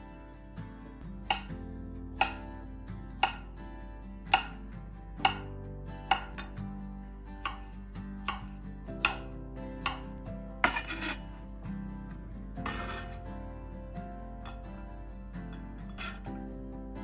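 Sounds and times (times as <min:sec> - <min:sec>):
soft background music: 0:00.0 - 0:17.0
knife slicing pickles: 0:01.3 - 0:01.6, 0:02.2 - 0:02.5, 0:03.2 - 0:03.4, 0:04.3 - 0:04.6, 0:05.2 - 0:05.5, 0:06.1 - 0:06.6, 0:07.4 - 0:07.7, 0:08.3 - 0:11.2, 0:12.7 - 0:13.2.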